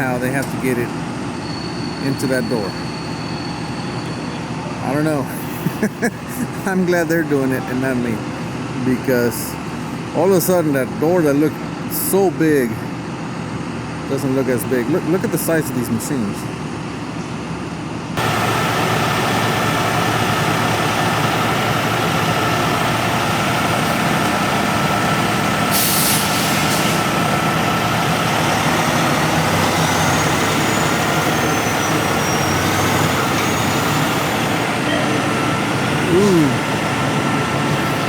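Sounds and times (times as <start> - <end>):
heavy diesel engines under load: 0.0 - 38.0
air brakes hissing: 1.2 - 4.6, 18.2 - 28.0, 28.7 - 36.9.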